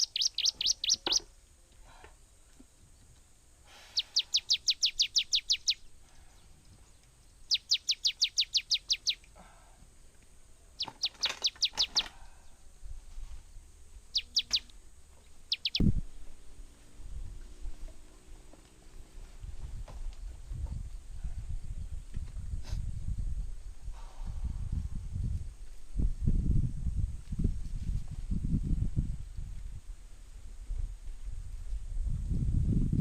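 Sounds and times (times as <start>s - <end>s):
songbird calling: 0.0s - 1.4s, 3.7s - 9.4s, 10.4s - 12.9s, 14.0s - 16.8s.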